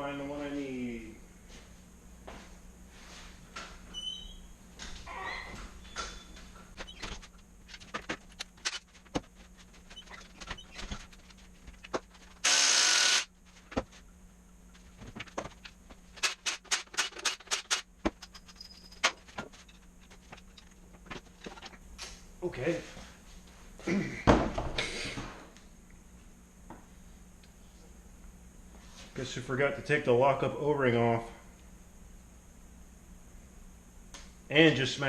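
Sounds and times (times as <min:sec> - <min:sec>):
metal tools clinking in toolbox: 0:17.0 - 0:19.8.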